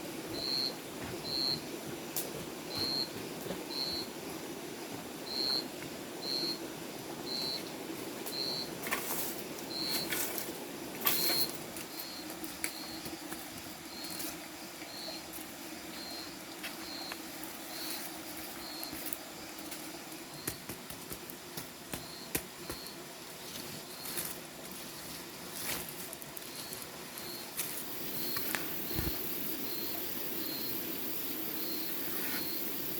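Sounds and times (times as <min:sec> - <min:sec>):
sharp taps and knocks: 0:20.4 - 0:22.9.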